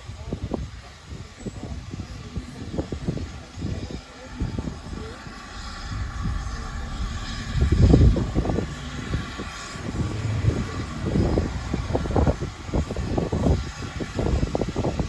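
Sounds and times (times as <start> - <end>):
wind buffeting microphone: 0.0 - 15.0
faint steady hum: 2.4 - 13.9.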